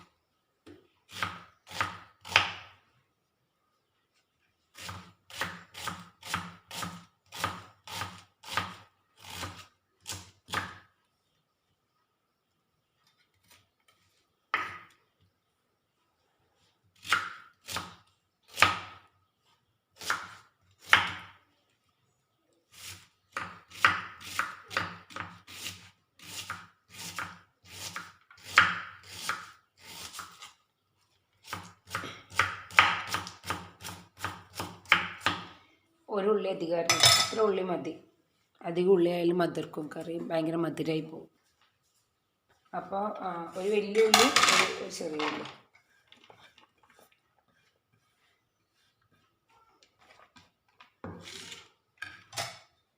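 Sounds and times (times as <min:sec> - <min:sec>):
knife chopping onion: 0:01.1 - 0:02.8, 0:04.7 - 0:10.9, 0:17.0 - 0:19.0, 0:20.0 - 0:21.3, 0:22.7 - 0:30.5, 0:31.4 - 0:35.5.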